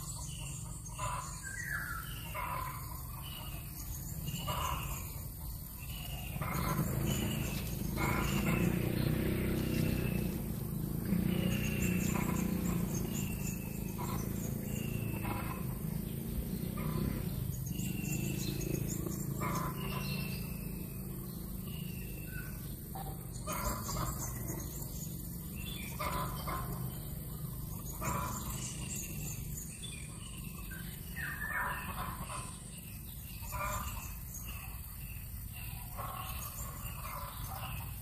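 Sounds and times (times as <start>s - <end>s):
birds whistling: 0.0s - 38.0s
harsh bird calls: 0.0s - 38.0s
steady low hum: 0.0s - 38.0s.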